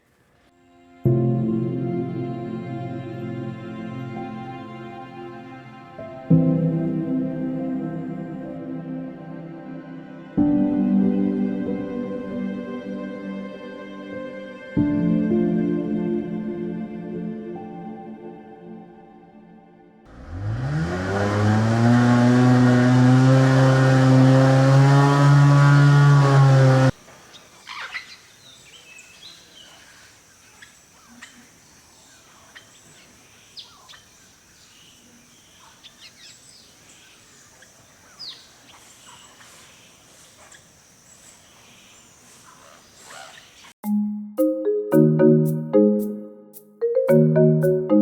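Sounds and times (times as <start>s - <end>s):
engine revving: 20.1s - 27.0s
bird chirps: 27.2s - 43.8s.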